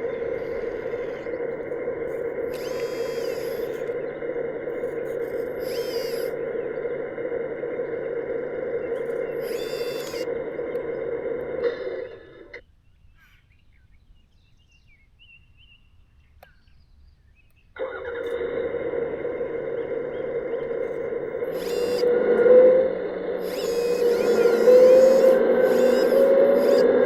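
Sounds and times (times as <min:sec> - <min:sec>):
birds chirping: 0:00.0 - 0:11.1, 0:19.3 - 0:22.1, 0:23.4 - 0:27.0
electric motor and gears whirring: 0:00.0 - 0:12.6, 0:17.8 - 0:27.0.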